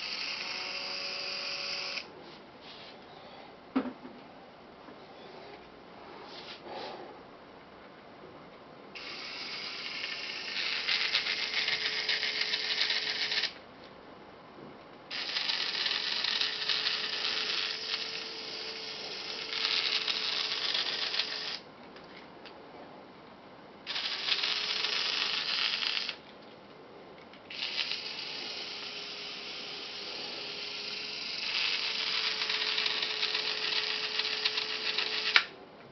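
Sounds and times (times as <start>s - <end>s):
cordless drill motor whine: 0.0s - 2.1s, 9.0s - 13.6s, 15.1s - 21.6s, 23.9s - 26.2s, 27.5s - 35.5s.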